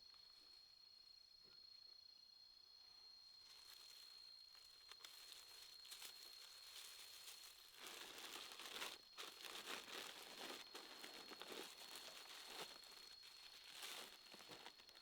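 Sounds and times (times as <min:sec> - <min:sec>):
faint rustling and crackling: 0:03.5 - 0:15.0.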